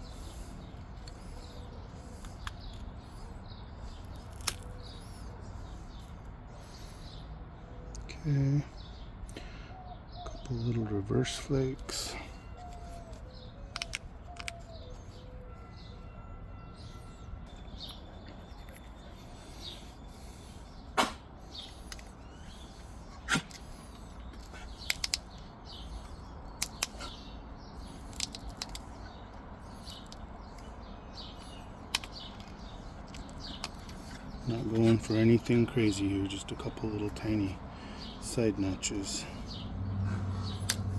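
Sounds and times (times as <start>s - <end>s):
faint birds chirping: 0.0s - 40.9s
stone flaking clicks and snaps: 3.9s - 5.0s, 12.6s - 14.8s, 21.6s - 22.2s, 23.3s - 27.2s, 27.8s - 30.8s, 31.4s - 34.2s.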